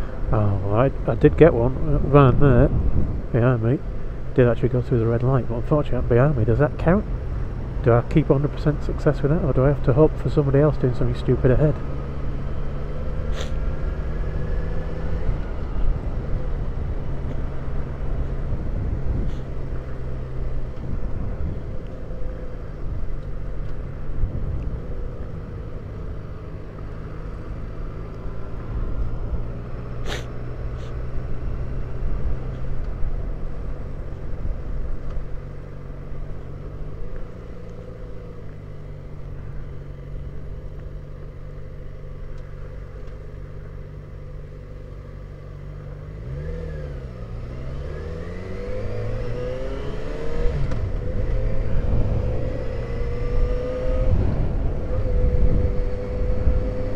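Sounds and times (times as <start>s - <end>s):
low rumble: 50.6s - 56.9s.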